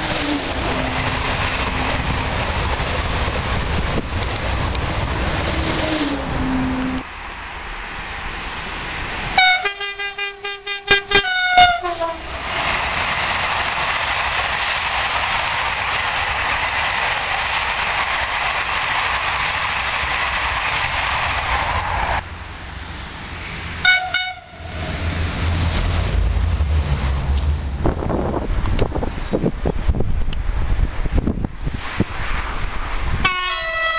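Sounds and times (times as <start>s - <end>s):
train passing: 0.0s - 33.9s
train horn blasts: 9.4s - 12.3s, 23.8s - 24.8s, 33.2s - 33.9s.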